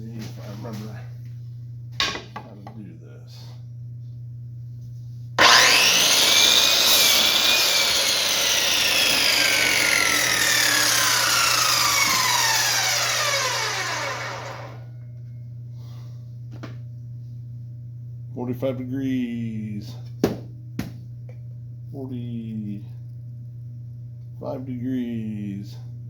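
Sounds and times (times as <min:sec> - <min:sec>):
electric saw motor whirring: 0:05.4 - 0:14.9
saw blade whine coasting down: 0:05.4 - 0:15.0.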